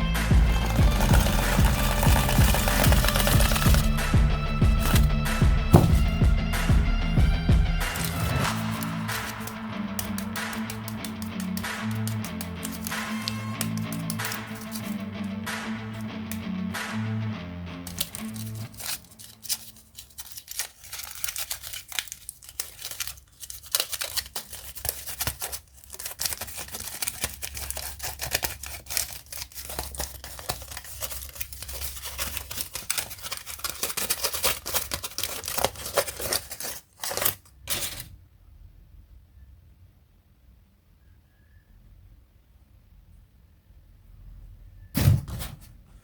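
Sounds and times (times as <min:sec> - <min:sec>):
packaging crackling and tearing: 0:00.4 - 0:06.0, 0:07.9 - 0:16.1, 0:17.8 - 0:38.1.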